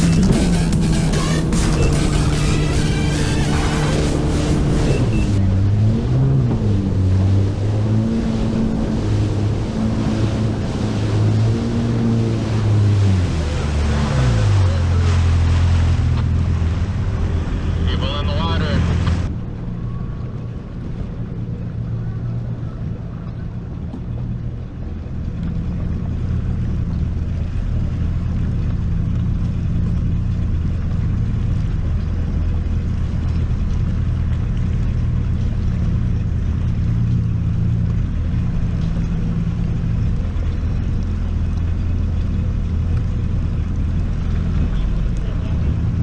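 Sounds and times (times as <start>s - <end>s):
jet ski engine drone: 0.0s - 46.0s.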